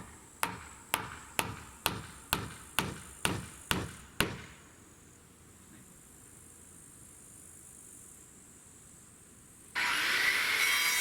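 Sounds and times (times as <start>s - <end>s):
tool striking wood: 0.4s - 4.6s.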